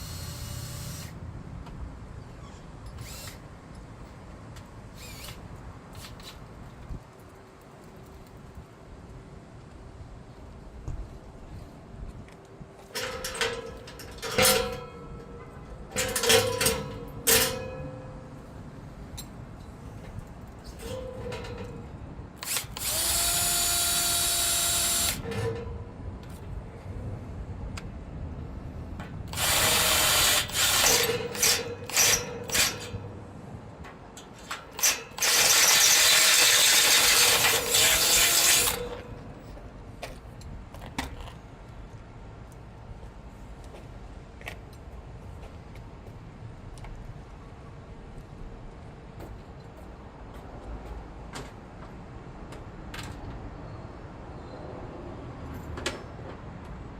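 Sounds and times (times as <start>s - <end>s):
power drill running: 0.0s - 1.2s, 3.0s - 3.4s, 22.4s - 25.2s, 29.3s - 32.7s, 35.2s - 39.0s.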